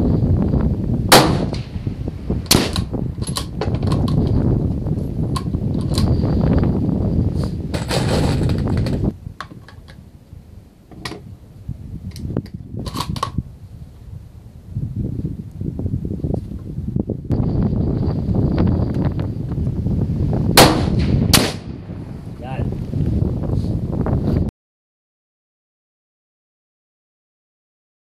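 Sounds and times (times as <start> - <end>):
wind noise on microphone: 0.0 - 24.5
loud rifle shot: 1.1 - 1.9, 2.5 - 3.0, 20.6 - 21.9
sharp clicks and knocks: 2.5 - 4.4, 5.3 - 6.1.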